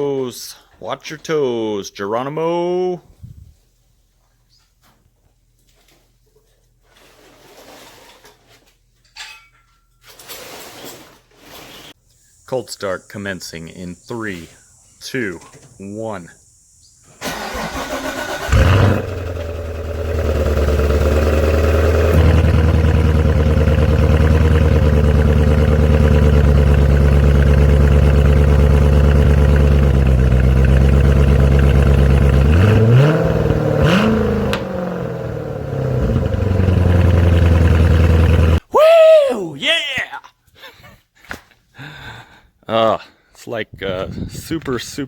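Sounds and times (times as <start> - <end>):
car engine starting and idling: 17.2 - 38.6
engine revving: 17.2 - 38.6.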